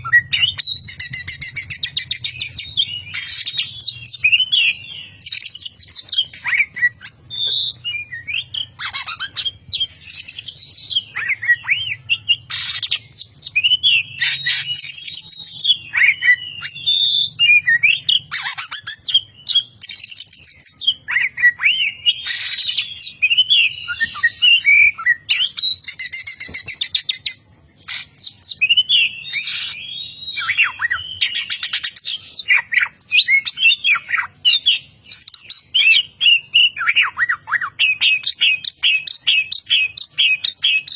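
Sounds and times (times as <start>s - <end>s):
songbird singing whistles and trills: 0.0s - 40.9s.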